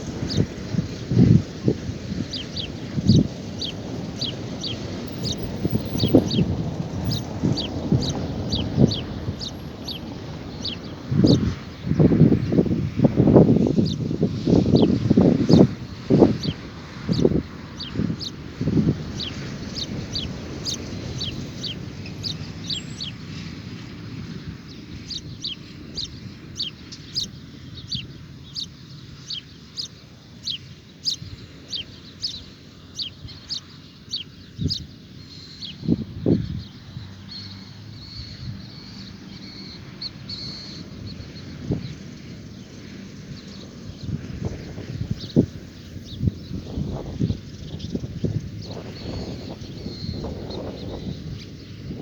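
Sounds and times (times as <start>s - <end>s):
bird chirping: 2.2s - 12.8s, 13.4s - 23.5s, 24.6s - 52.0s.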